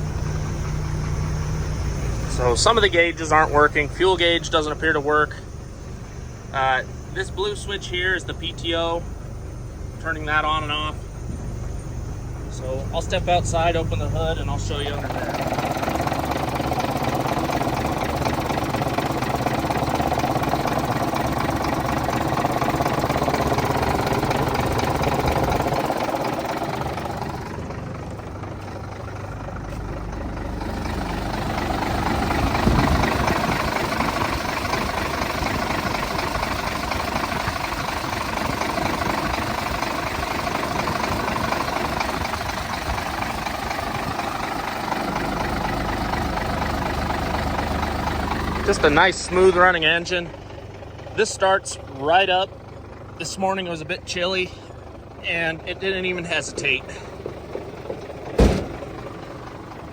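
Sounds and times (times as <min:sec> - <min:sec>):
diesel truck engine idling: 0:00.0 - 0:59.9
thump: 0:58.4 - 0:59.0.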